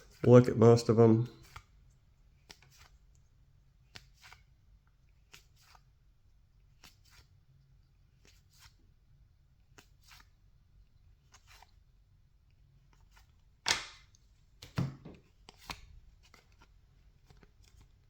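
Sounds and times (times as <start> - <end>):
cards being flipped: 1.4 - 1.7, 2.4 - 3.0, 3.8 - 4.6, 5.2 - 6.0, 6.6 - 7.4, 8.1 - 8.8, 9.6 - 10.3, 11.1 - 11.8, 12.8 - 18.0.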